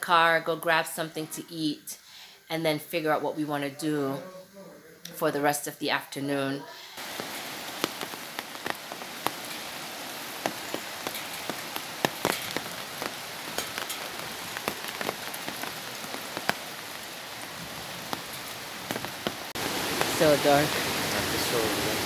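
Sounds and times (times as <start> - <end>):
steady rain falling: 6.9 - 22.0
raindrops ticking on a surface: 7.0 - 22.0.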